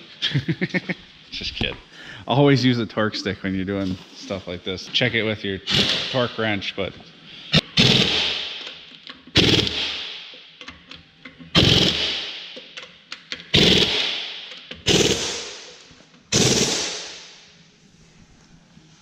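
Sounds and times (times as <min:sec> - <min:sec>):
impact wrench driving lug nuts: 0:05.7 - 0:06.2, 0:07.6 - 0:17.2.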